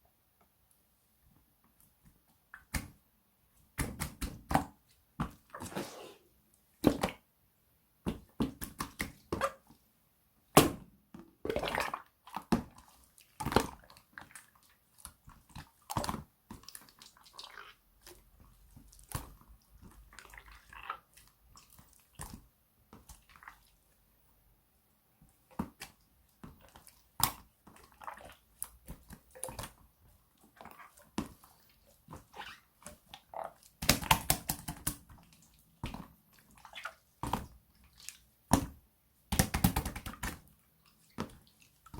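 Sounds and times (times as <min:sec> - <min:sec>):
slime squishing with wet clicks: 0:01.6 - 0:03.0, 0:11.7 - 0:24.1, 0:25.2 - 0:41.9.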